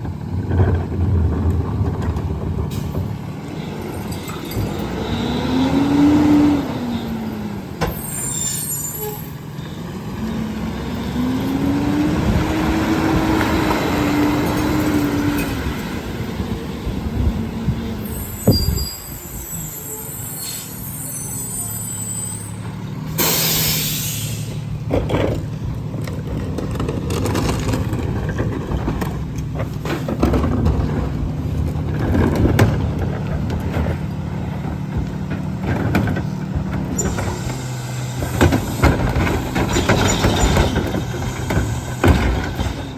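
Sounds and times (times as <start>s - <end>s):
garbage truck engine revving: 0.0s - 8.6s, 9.4s - 42.9s
hydraulic packer compacting: 0.0s - 42.9s
loud air hiss: 23.2s - 24.6s
metal knocks and clanks: 38.2s - 42.9s.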